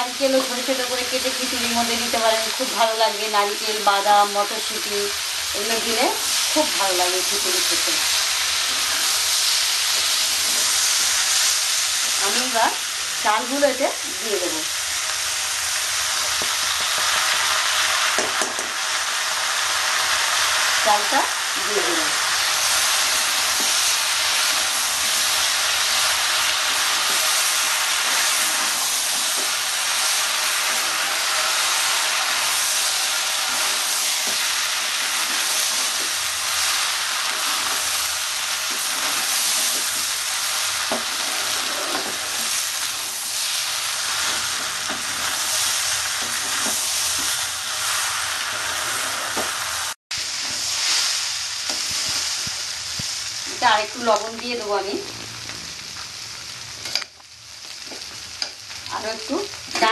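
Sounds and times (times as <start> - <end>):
rice and vegetables sizzling: 0.0 - 59.9
spatula scraping a pan: 8.5 - 11.2, 33.2 - 47.5.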